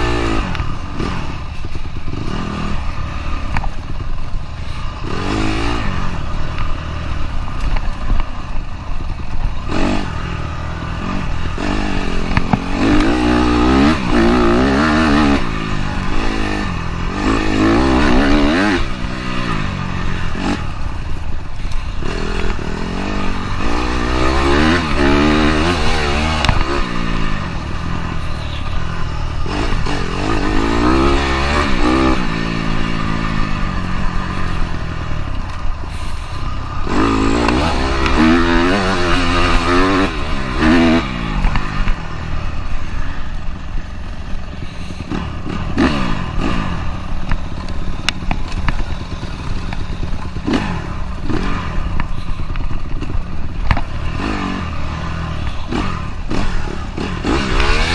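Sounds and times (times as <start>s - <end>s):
dirt bike engine revving: 0.0s - 57.9s
clatter and rattle: 47.0s - 54.2s.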